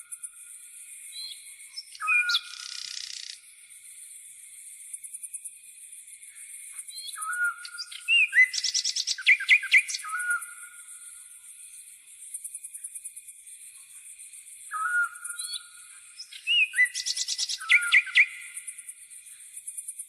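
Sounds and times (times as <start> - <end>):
songbirds calling: 1.0 - 3.4, 6.4 - 11.6, 14.5 - 19.6.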